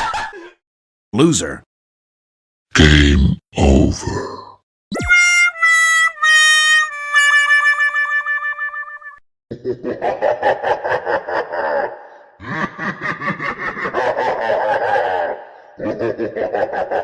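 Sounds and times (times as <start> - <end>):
rapid pulsing laughter: 9.6 - 17.0.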